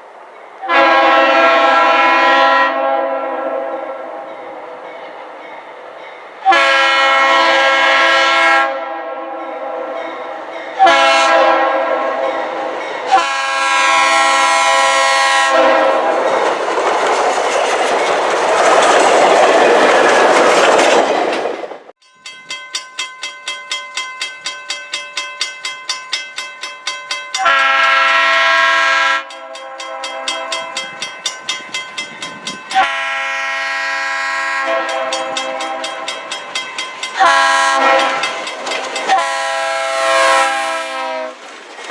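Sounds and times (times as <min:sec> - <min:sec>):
train passing loudly: 0:00.0 - 0:41.9
train horn blasts: 0:00.6 - 0:05.4, 0:06.4 - 0:16.2, 0:27.4 - 0:31.1, 0:32.7 - 0:36.4, 0:37.2 - 0:41.4
wheels clicking over rail joints: 0:15.5 - 0:33.1, 0:34.6 - 0:39.8, 0:41.4 - 0:41.9.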